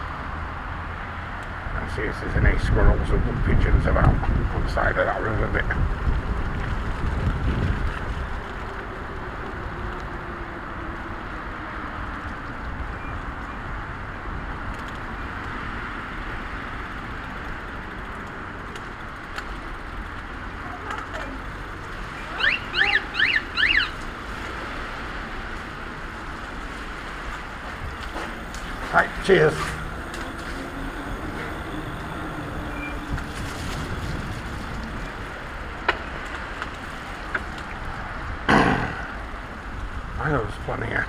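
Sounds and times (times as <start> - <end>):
wet road noise: 0.0 - 41.0
wind: 0.0 - 41.0
high-pitched chirps: 22.1 - 24.0.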